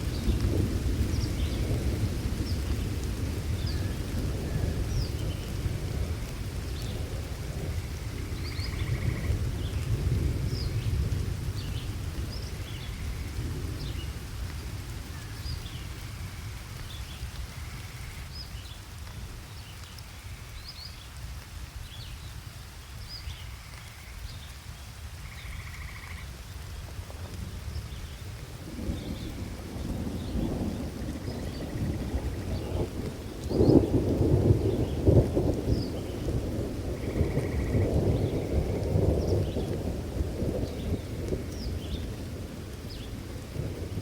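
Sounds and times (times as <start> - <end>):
thunder rumble: 0.0 - 16.8, 26.6 - 44.0
steady rain: 0.0 - 44.0.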